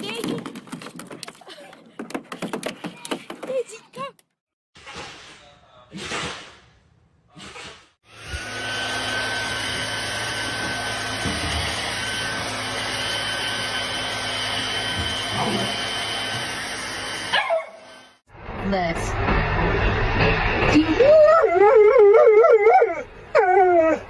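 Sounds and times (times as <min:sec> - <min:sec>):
electric motor whining: 0:08.1 - 0:17.3.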